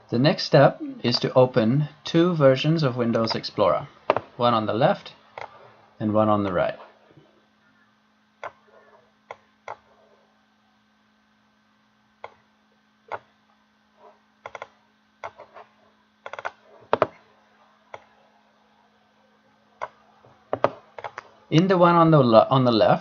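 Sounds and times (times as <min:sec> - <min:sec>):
faint electrical hum: 0:00.0 - 0:23.0
mouse and keyboard clicks: 0:14.4 - 0:15.5, 0:16.2 - 0:17.2, 0:19.8 - 0:21.3.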